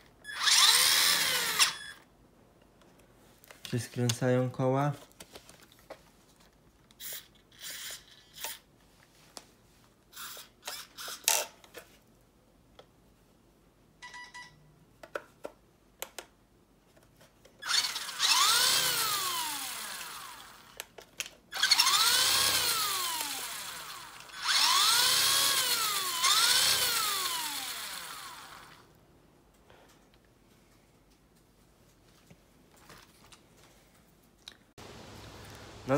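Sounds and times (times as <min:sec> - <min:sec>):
toy truck electric motor whine: 0:00.3 - 0:02.0, 0:07.0 - 0:08.6, 0:10.2 - 0:11.4, 0:17.6 - 0:20.9, 0:21.5 - 0:28.9.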